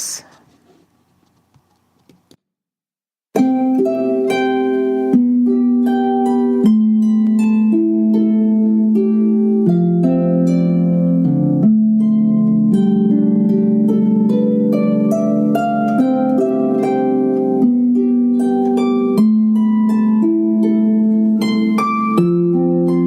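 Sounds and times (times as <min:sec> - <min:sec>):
harp music: 0:03.4 - 0:23.0.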